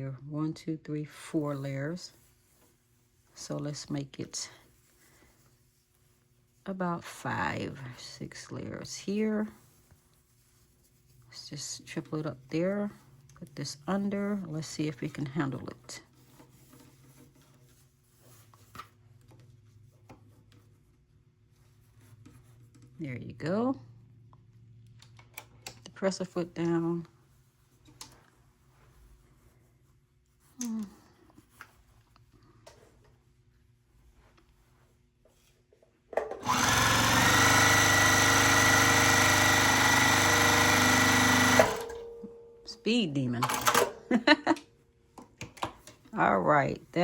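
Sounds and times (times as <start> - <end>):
sewing machine stitching: 36.4 - 42.0
low steady hum: 41.6 - 45.0.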